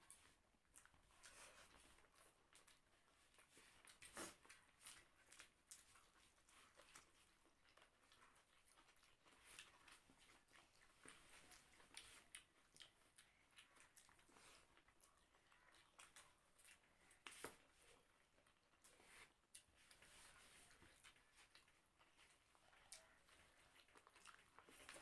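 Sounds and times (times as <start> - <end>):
chewing and smacking mouth sounds: 0.0 - 25.0.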